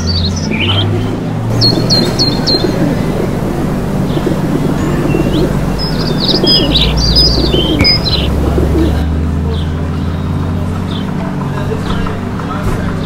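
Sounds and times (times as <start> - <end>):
rapid high bird-like chirps: 1.5 - 9.0
steady low hum: 1.5 - 9.1.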